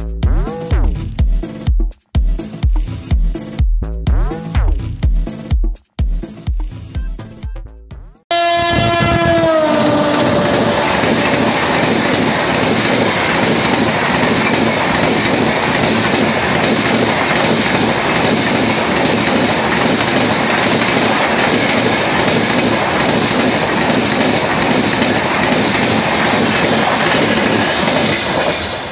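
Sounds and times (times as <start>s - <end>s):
train horn: 8.3s - 11.4s, 21.4s - 22.4s
train coaches rushing past: 8.4s - 28.9s
wheels clattering over rail joints: 9.8s - 28.9s.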